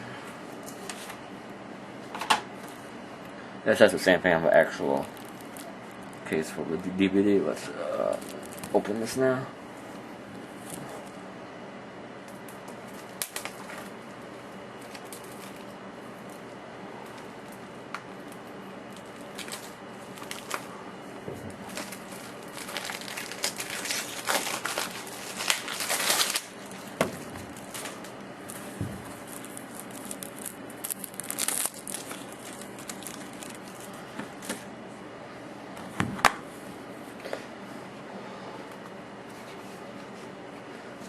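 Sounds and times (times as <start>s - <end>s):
plastic shrink-wrap crinkling and tearing: 4.6s - 9.1s, 12.9s - 14.0s, 14.8s - 15.8s, 18.3s - 20.7s, 21.6s - 34.5s.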